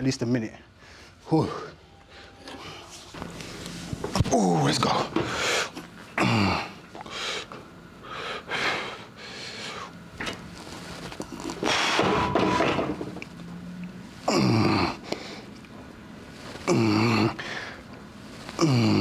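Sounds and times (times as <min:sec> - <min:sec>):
man breathing hard: 0:05.2 - 0:10.0, 0:11.3 - 0:12.3, 0:14.2 - 0:15.6, 0:16.4 - 0:19.0
man groaning: 0:14.3 - 0:15.0, 0:16.6 - 0:17.4, 0:18.6 - 0:19.0.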